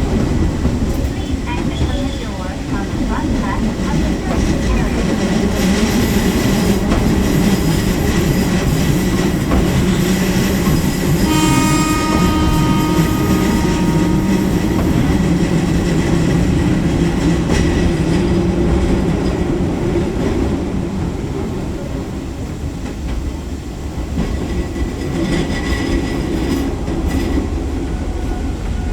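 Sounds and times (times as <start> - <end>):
train wheels clickety-clack: 0.0 - 28.9
high stacked tone: 11.2 - 17.6.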